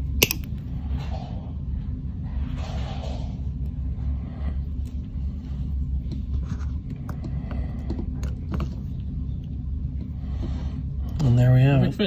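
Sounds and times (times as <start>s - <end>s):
small sharp metal clicks: 0.2s - 0.5s.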